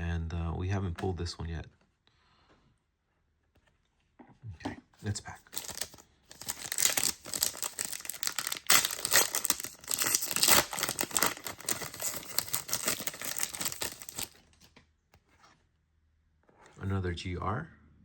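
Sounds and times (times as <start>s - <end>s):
card pack wrapper tearing and crinkling: 5.5s - 14.4s.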